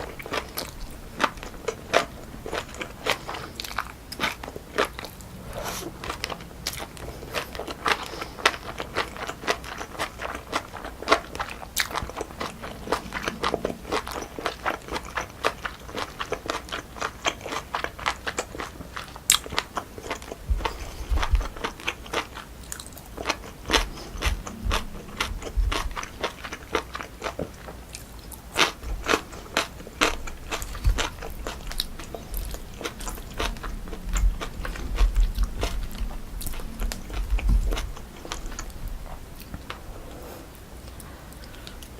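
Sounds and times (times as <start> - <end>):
chewing with crunches: 0.0 - 41.9
low soft thumps: 20.4 - 21.6, 23.6 - 26.1, 30.1 - 40.0.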